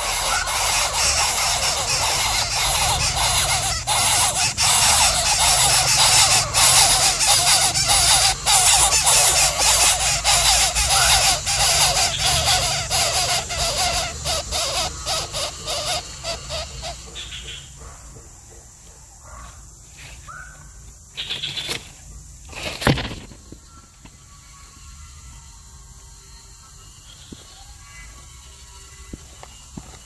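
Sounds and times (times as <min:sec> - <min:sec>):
baby bird begging calls: 0:00.0 - 0:17.7.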